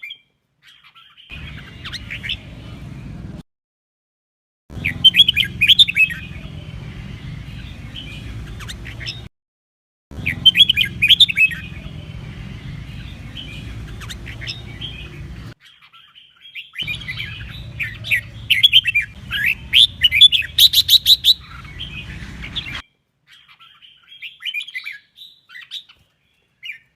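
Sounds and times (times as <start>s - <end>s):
bulbul warbling song: 1.3s - 2.8s, 4.8s - 9.3s, 10.2s - 15.6s, 16.8s - 22.8s
low steady hum: 10.2s - 15.6s, 16.8s - 22.8s.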